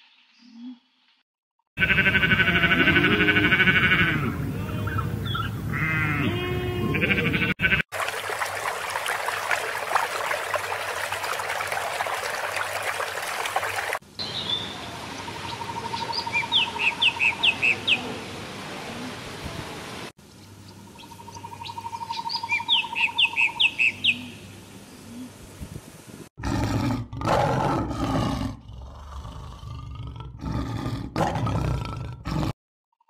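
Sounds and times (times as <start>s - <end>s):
sheep bleating: 1.8s - 5.0s, 5.7s - 7.8s
birds chirping: 4.7s - 18.2s, 20.2s - 25.3s
water splashing and hissing: 7.9s - 15.4s.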